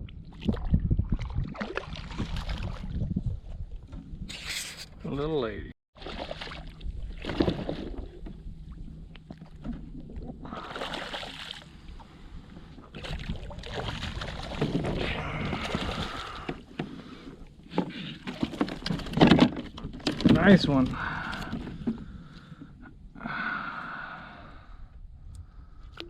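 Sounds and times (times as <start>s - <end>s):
water splashing and sloshing: 0.0s - 4.8s, 6.0s - 22.9s.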